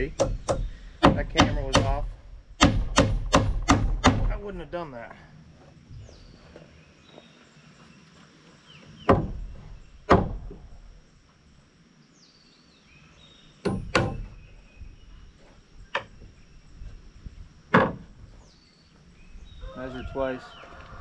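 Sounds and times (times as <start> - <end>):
hammer driving nails into wood: 0.1 - 4.4, 13.6 - 14.3.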